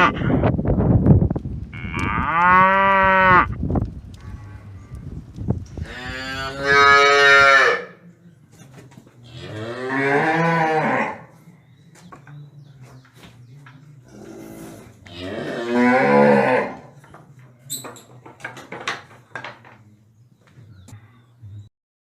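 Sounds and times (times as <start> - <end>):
cow mooing: 1.8 - 3.6, 5.8 - 8.0, 9.3 - 11.3, 14.1 - 16.9.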